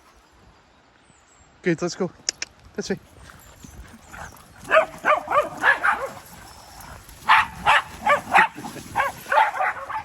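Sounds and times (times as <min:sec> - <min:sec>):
dog barking: 0:04.7 - 0:06.2, 0:07.2 - 0:10.0.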